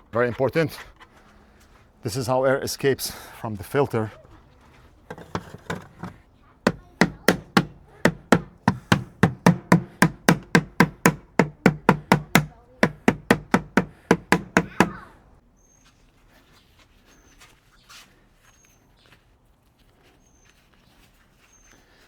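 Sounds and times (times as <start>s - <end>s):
filter screen knocking on hard surface: 5.1s - 15.0s.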